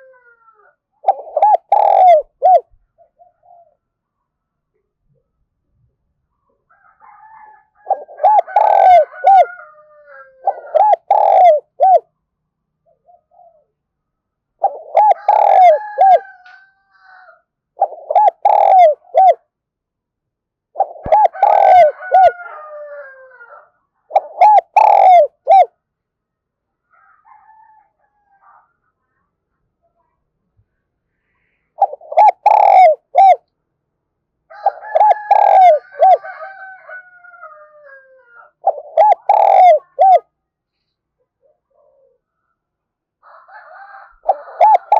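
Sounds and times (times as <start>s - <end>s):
dove cooing: 0.0s - 3.8s, 7.8s - 12.1s, 12.9s - 13.8s, 14.6s - 16.4s, 17.8s - 19.4s, 20.7s - 25.7s, 31.8s - 33.4s, 34.5s - 36.8s, 37.8s - 40.3s, 41.4s - 42.2s, 44.1s - 44.9s.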